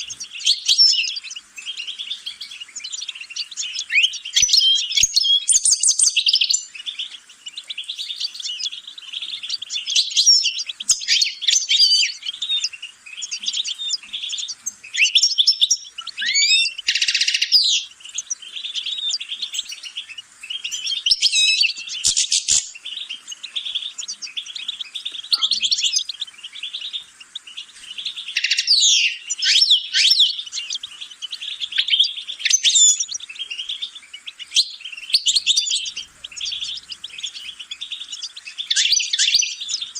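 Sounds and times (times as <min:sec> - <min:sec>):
songbird singing twittering song: 0:00.0 - 0:39.9.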